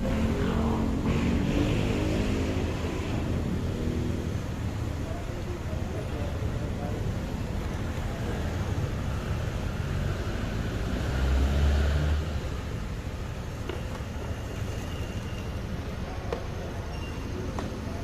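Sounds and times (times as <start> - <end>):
road traffic rumbling: 0.0 - 18.0.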